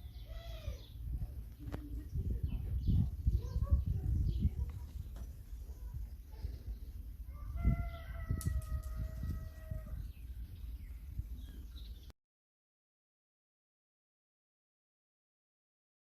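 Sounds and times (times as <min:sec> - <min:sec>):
rooster crowing: 0:07.3 - 0:10.1.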